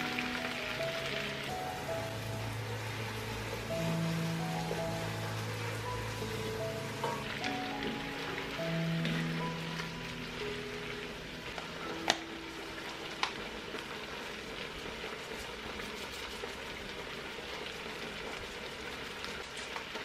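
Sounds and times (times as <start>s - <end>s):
food sizzling in a pot: 0.0s - 20.0s.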